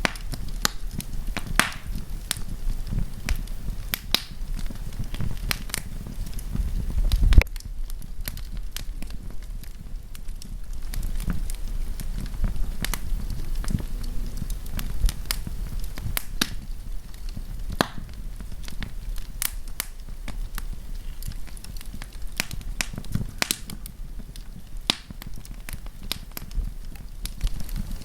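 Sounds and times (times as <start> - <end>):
campfire snaps and pops: 0.0 - 28.0
low rumble of flames: 0.0 - 28.0.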